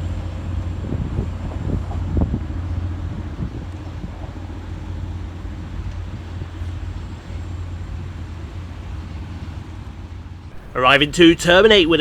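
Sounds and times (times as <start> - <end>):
wind noise on microphone: 0.8 - 4.4
train diesel engine droning: 10.6 - 12.0.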